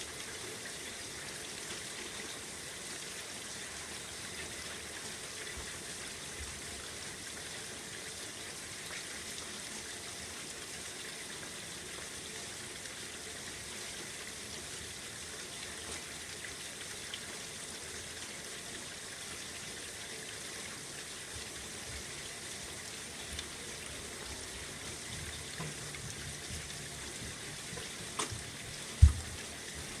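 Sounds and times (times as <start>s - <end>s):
steady rain falling: 21.0s - 30.0s
water drips: 21.1s - 30.0s
screen door thump: 29.0s - 29.4s.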